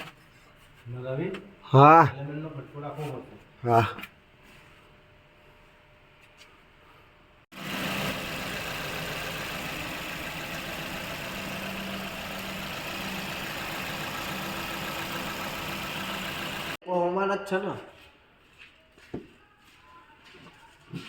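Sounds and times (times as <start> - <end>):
car engine idling: 7.5 - 16.8.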